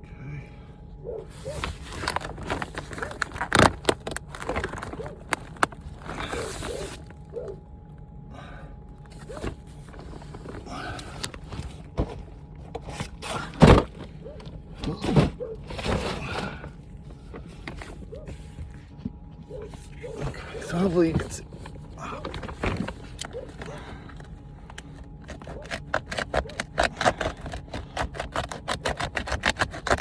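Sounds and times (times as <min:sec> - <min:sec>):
rustling plastic scrapes: 0:01.3 - 0:07.3, 0:09.1 - 0:14.2, 0:19.6 - 0:30.0.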